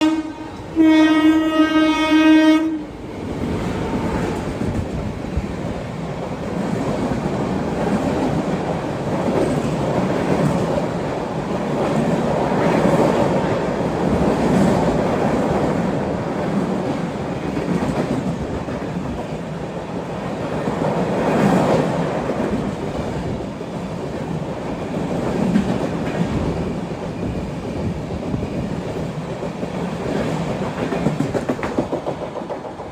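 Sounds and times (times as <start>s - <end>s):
train horn blast: 0.0s - 2.9s
train rumbling: 0.0s - 32.9s
wheels clacking on rails: 2.8s - 32.9s.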